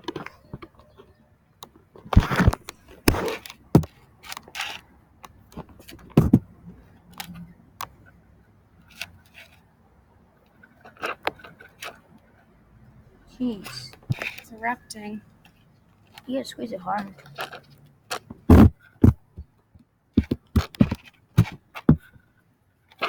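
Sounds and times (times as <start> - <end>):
clicks and knocks of toy handling: 0.0 - 8.1, 10.4 - 12.3, 13.6 - 14.6, 16.9 - 22.2.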